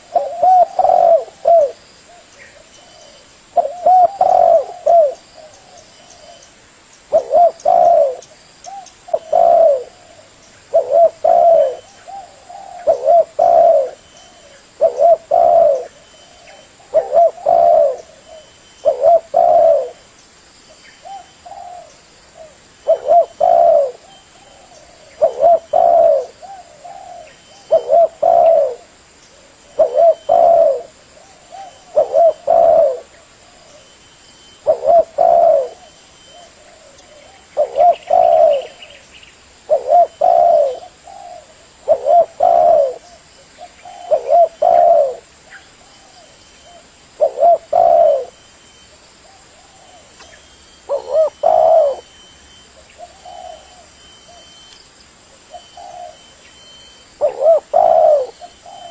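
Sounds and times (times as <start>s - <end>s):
dove cooing: 0.0s - 6.5s, 7.1s - 20.0s, 21.0s - 48.5s, 49.2s - 54.7s, 55.4s - 58.9s.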